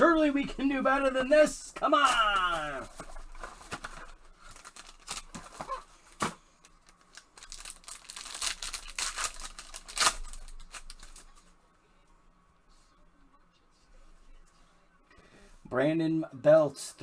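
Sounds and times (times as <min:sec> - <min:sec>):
card pack tearing and crinkling: 0:02.0 - 0:11.4.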